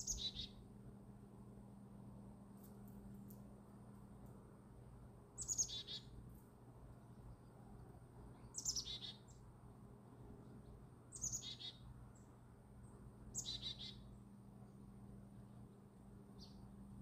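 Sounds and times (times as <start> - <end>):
songbird singing: 0.0 - 0.8, 5.3 - 17.0
low steady hum: 0.0 - 17.0.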